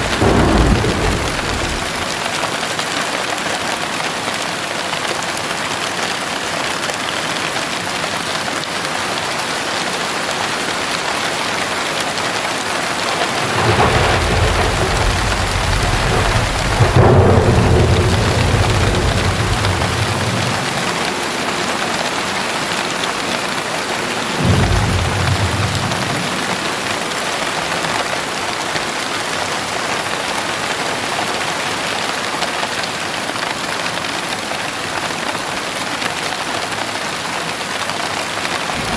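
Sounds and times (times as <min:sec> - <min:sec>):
thunder rumbling and cracking: 0:00.0 - 0:02.7, 0:11.4 - 0:28.4, 0:38.6 - 0:38.9
heavy rain falling: 0:00.0 - 0:38.9.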